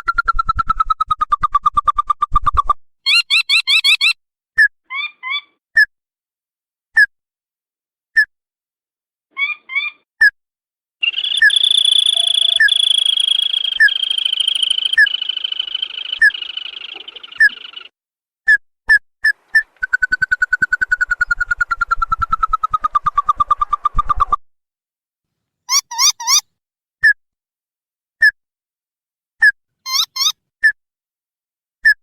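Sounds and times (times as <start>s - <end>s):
crake rattling trill: 11.0s - 17.9s.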